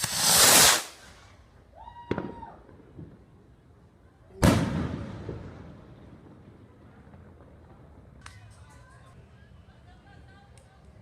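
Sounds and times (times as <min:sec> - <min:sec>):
firework rushing burst: 0:00.0 - 0:01.4
firework crack: 0:00.0 - 0:11.0
loud firework bang: 0:04.4 - 0:06.4.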